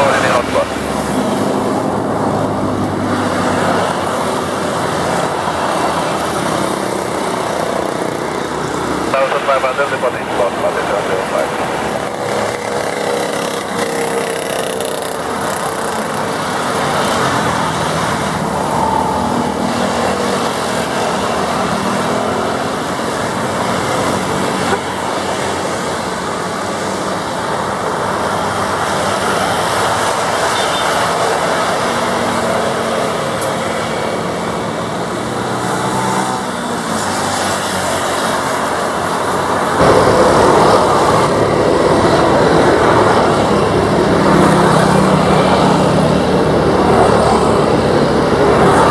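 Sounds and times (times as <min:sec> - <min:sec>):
propeller aircraft engine drone: 0:00.0 - 0:35.2
outdoor roar: 0:00.0 - 0:48.9.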